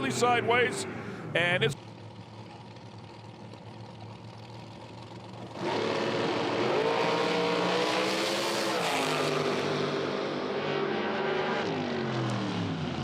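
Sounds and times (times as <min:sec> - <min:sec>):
low steady engine hum: 0:00.0 - 0:07.5
drag racing engines accelerating: 0:00.0 - 0:13.0.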